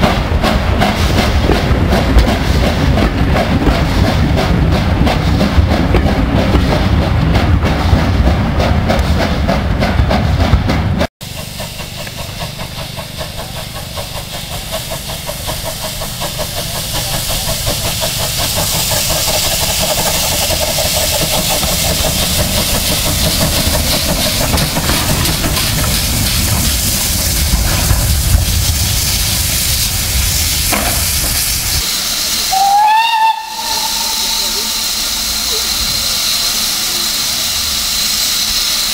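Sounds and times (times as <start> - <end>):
steam locomotive hissing: 0.0 - 38.9
steam whistle blast: 31.8 - 36.0.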